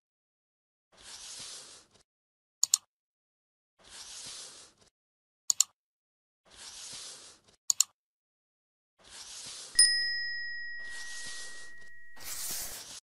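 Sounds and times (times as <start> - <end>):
bright struck ding: 9.8 - 12.3.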